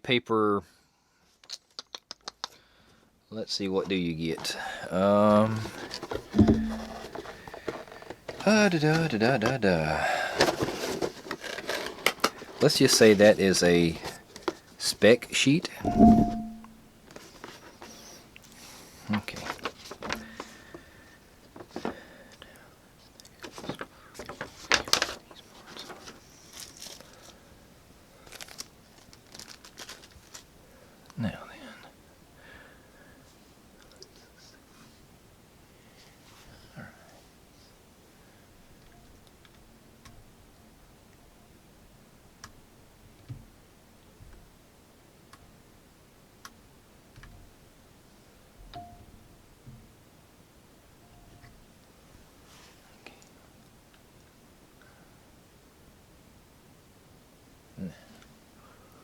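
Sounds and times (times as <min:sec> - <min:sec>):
packaging crinkling and rustling: 0:06.9 - 0:09.0, 0:10.4 - 0:13.2, 0:19.2 - 0:20.5, 0:23.4 - 0:27.4, 0:28.2 - 0:30.6.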